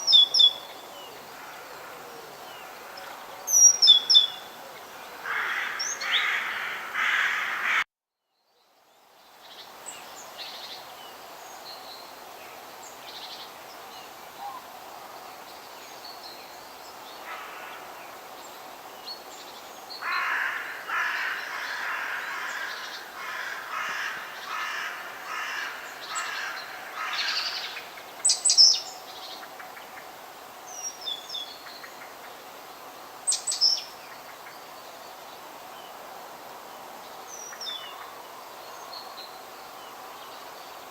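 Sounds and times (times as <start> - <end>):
birds calling: 0.0 - 7.8, 20.0 - 30.1
steady background hiss: 0.0 - 7.8, 8.5 - 40.9.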